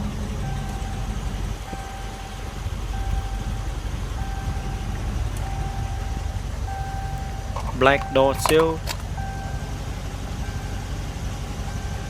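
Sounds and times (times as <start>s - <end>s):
steady low rumble: 0.0s - 12.0s
electronic beeps: 0.4s - 9.7s.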